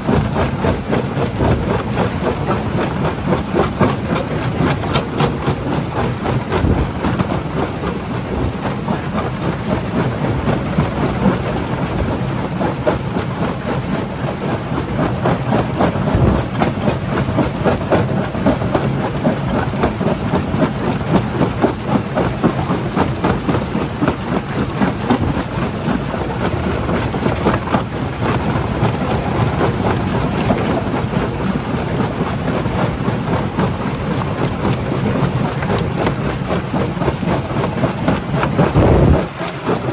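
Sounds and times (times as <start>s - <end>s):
stone crusher machine drone: 14.3s - 39.9s.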